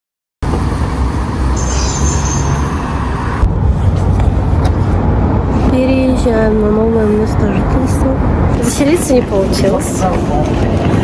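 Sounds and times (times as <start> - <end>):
road vehicle rumble: 0.4 - 11.0.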